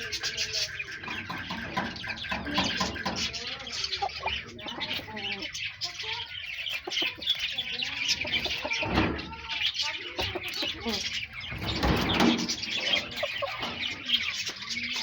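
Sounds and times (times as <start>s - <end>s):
many birds chirping: 0.0s - 15.0s.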